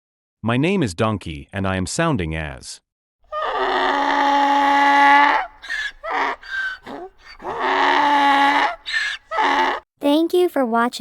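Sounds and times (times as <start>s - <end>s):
donkey braying: 3.3s - 9.9s.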